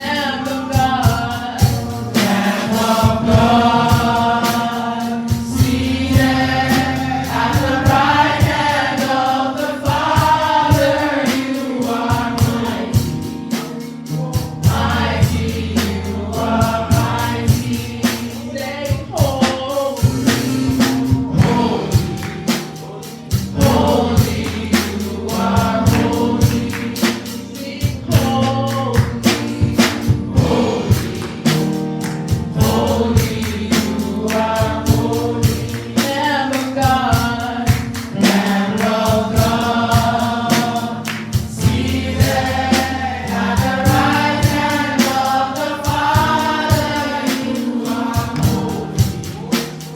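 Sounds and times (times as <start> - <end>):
choir singing gospel: 0.0 - 49.9
steady drum beat: 0.0 - 49.9
sustained bass notes: 1.8 - 8.7, 38.7 - 46.4.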